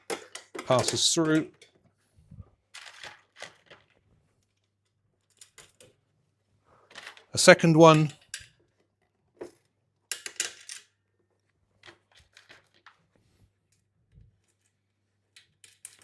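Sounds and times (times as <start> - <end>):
metal bolt and nut clinking: 0.0 - 1.7.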